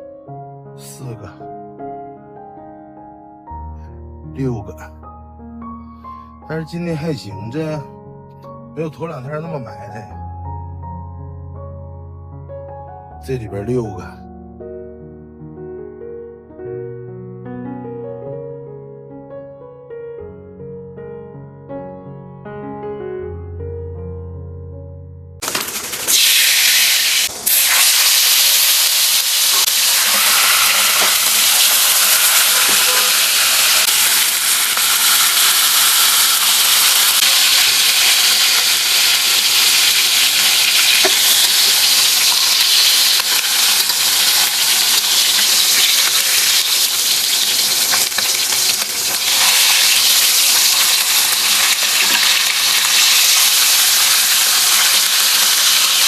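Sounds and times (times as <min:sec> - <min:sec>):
food sizzling in hot oil: 0:25.4 - 0:56.0.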